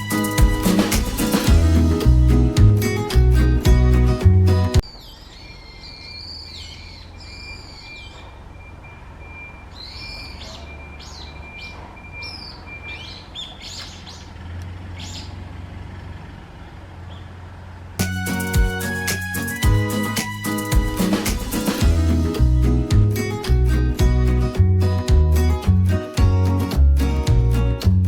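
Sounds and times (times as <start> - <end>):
songbird calling: 4.8 - 15.4.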